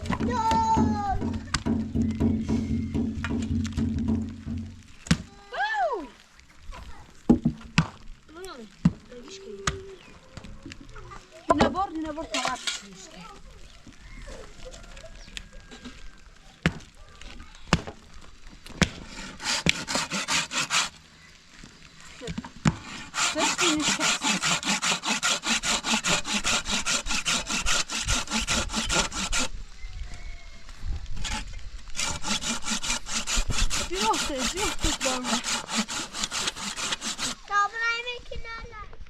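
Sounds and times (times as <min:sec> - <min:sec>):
hand saw cutting wood: 0:11.5 - 0:13.0, 0:18.9 - 0:21.0, 0:22.6 - 0:29.5, 0:31.2 - 0:37.5.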